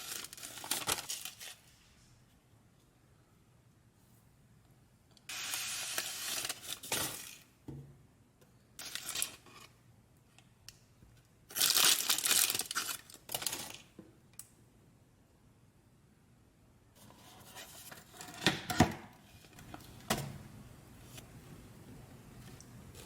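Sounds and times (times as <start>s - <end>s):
packaging crinkling and tearing: 0.0s - 1.6s, 5.3s - 7.4s, 8.8s - 9.4s, 11.5s - 13.9s.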